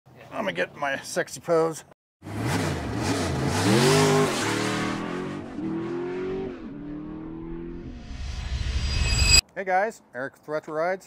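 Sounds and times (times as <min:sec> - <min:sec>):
car engine revving: 0:02.2 - 0:08.5.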